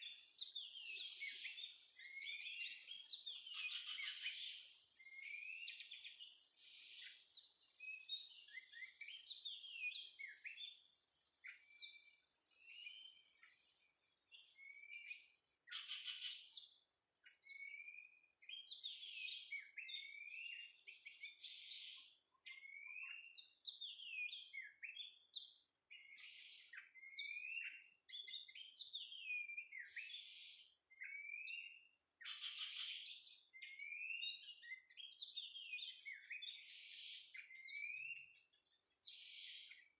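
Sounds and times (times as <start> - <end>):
bird singing whistled phrases: 5.0 - 6.2, 25.9 - 30.3, 30.9 - 38.3.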